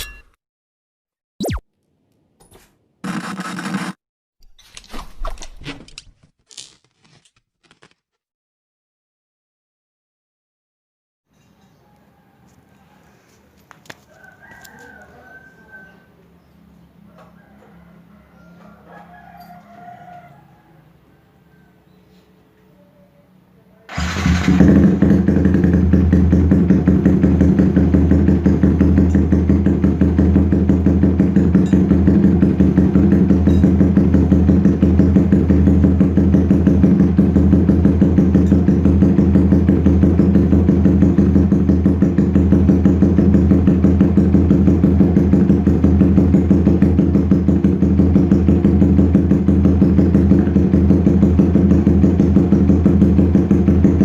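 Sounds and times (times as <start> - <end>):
motorcycle engine idling: 23.9 - 54.0.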